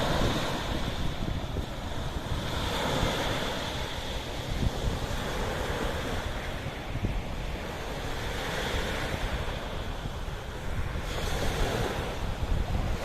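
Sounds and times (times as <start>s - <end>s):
sea waves washing: 0.0s - 13.0s
wind buffeting microphone: 0.0s - 13.0s.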